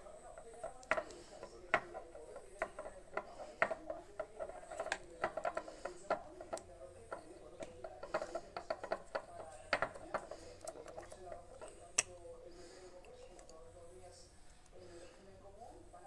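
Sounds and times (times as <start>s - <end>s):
small objects clicking and tapping: 0.0s - 12.2s.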